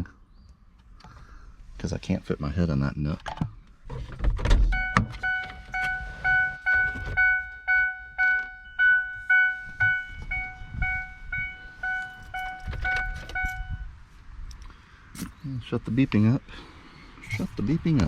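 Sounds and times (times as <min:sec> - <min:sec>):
car warning chime beeping: 0:04.6 - 0:13.9.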